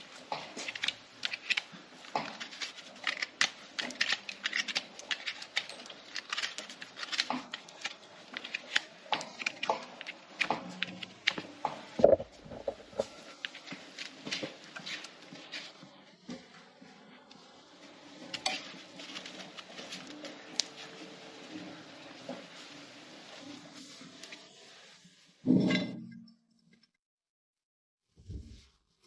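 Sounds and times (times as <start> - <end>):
hoof trimming clicks and scraping: 0.1 - 22.8.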